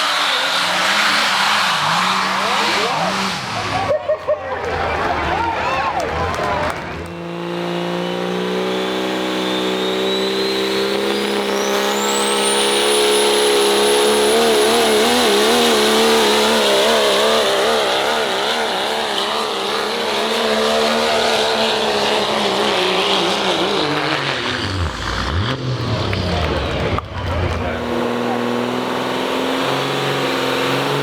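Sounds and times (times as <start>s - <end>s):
diesel truck engine at full throttle: 0.0s - 31.0s
turbocharger whistle: 6.7s - 17.9s.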